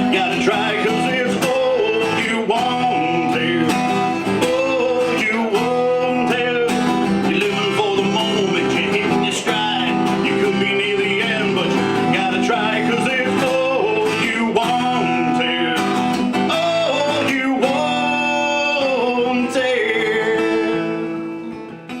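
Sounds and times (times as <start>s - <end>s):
guitar strummed and picked: 0.0s - 22.0s
person singing: 0.0s - 22.0s.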